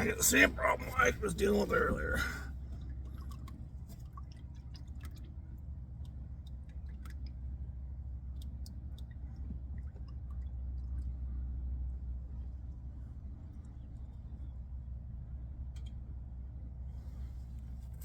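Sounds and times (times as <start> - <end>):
low steady rumble: 0.0 - 18.0
oil dripping into a pan: 2.7 - 11.2.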